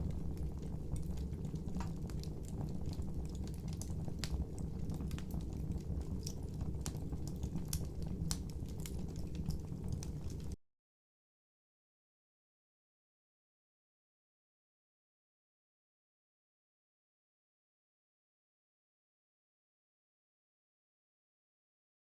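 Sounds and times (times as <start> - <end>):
fire rumbling: 0.0 - 10.6
logs crackling and popping: 0.0 - 10.6.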